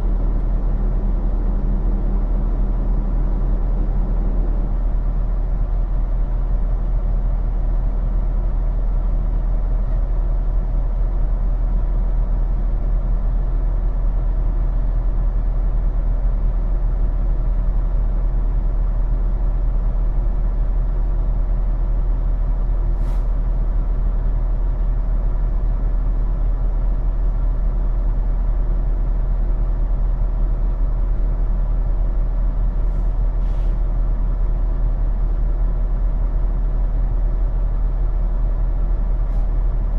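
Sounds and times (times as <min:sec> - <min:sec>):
short air hisses: 0:23.0 - 0:23.4, 0:32.9 - 0:33.8.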